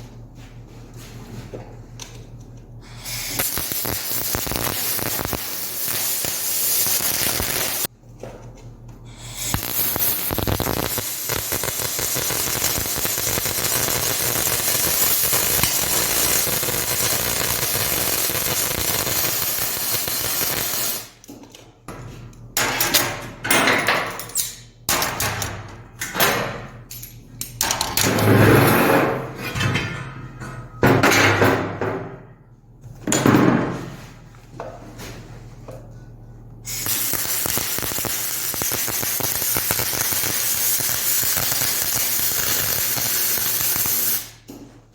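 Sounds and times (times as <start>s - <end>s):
welding arc hiss: 2.8s - 7.9s, 9.1s - 21.2s, 36.6s - 44.5s
metal clanks and knocks: 21.3s - 32.3s.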